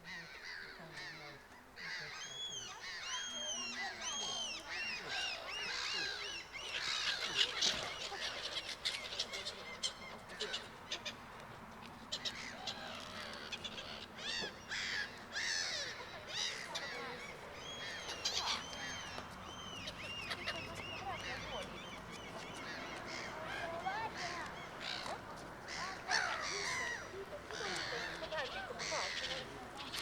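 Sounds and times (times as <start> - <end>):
flock of birds calling: 0.0 - 30.0.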